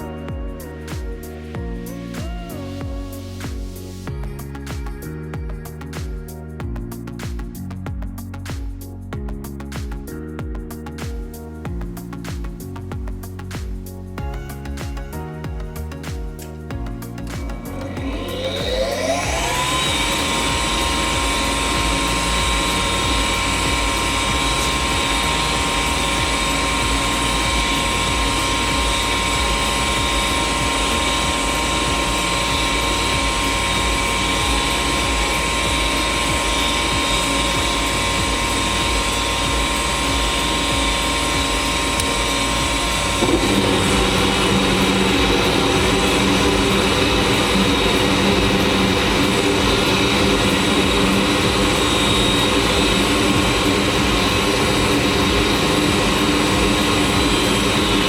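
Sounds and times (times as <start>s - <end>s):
deeper hum: 14.2s - 58.0s
furnace motor whining: 16.9s - 58.0s.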